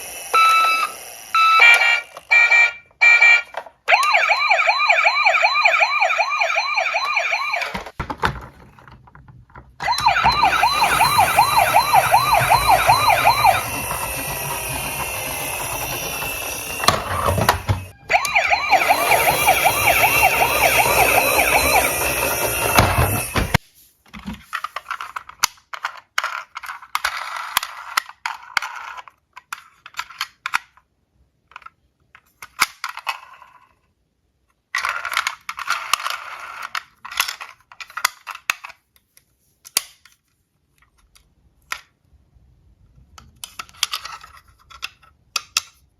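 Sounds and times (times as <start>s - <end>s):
siren wailing: 0.3s - 7.9s, 9.8s - 23.6s
toy cars clicking and clattering: 7.6s - 23.6s, 24.4s - 42.1s, 42.9s - 45.9s.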